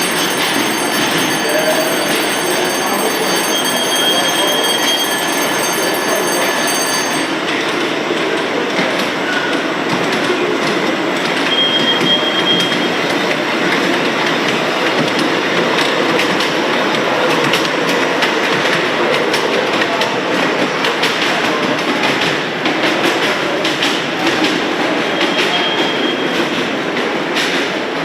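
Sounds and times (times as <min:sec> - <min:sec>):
model train wheels rolling on track: 0:00.0 - 0:09.1.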